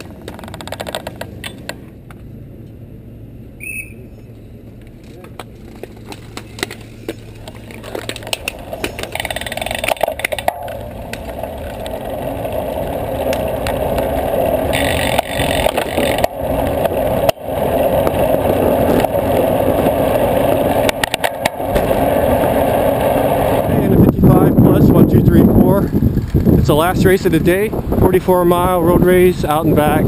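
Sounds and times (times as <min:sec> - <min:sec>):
bicycle tyres on pavement: 0:00.0 - 0:30.0
wind over microphone: 0:07.3 - 0:30.0.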